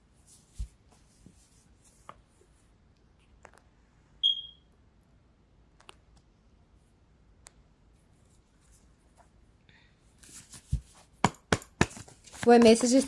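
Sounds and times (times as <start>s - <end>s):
faint clicks and taps: 2.9s - 3.7s, 5.7s - 6.3s
short high electronic beep: 4.2s - 4.6s.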